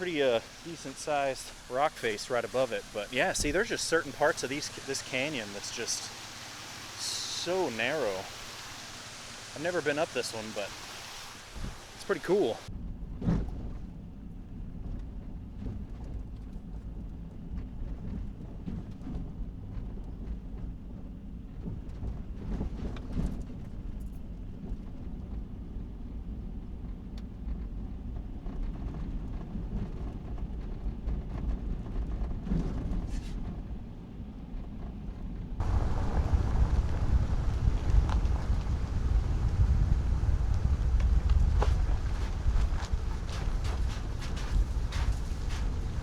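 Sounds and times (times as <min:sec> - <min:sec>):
truck engine and tyres rumbling: 0:00.0 - 0:12.7, 0:35.6 - 0:46.0.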